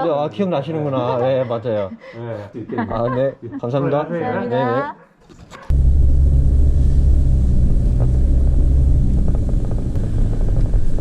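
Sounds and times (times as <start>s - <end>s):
car engine and road noise: 5.7s - 11.0s.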